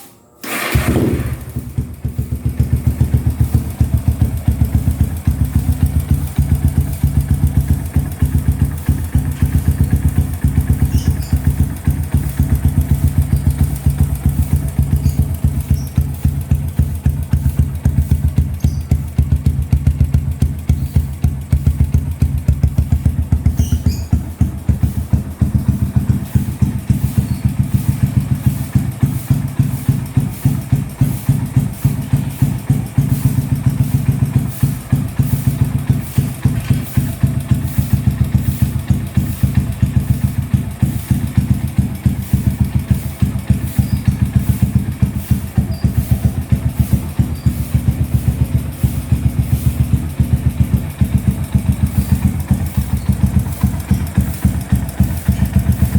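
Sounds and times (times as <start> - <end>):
motorcycle engine idling: 0.4 - 55.9.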